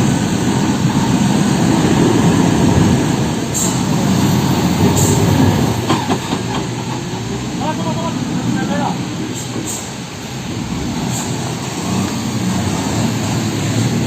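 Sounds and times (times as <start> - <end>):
heavy truck engine rumble: 0.0 - 14.0
short hisses: 9.3 - 10.0.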